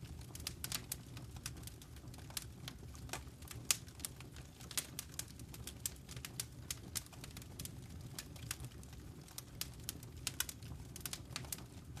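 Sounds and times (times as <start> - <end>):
low rumble of flames: 0.0 - 12.0
wood fire crackling and popping: 0.0 - 12.0.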